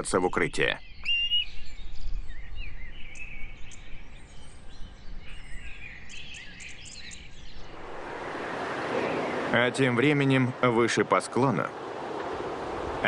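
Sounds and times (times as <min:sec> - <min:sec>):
birds chirping and singing: 0:00.0 - 0:07.7.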